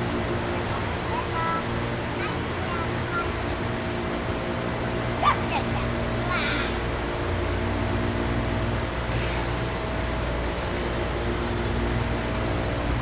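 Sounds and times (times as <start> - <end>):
low mechanical hum: 0.0 - 13.0
phone timer alarm double beep: 9.5 - 9.8, 10.5 - 10.8, 11.4 - 11.9, 12.5 - 12.9.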